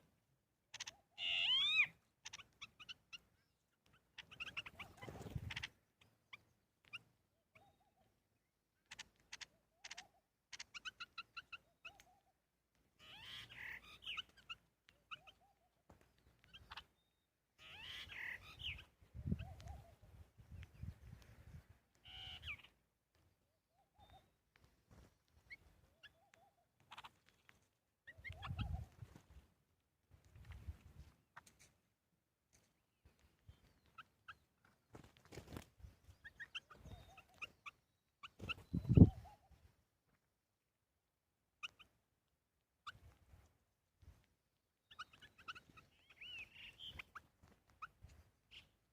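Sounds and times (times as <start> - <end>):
birds chirping: 0.0 - 29.5, 32.6 - 39.9, 41.6 - 42.1, 44.8 - 48.9.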